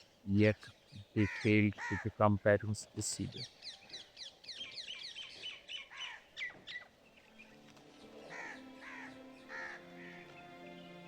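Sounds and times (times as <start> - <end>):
birds chirping: 0.0 - 11.0
soft background music: 6.9 - 11.0.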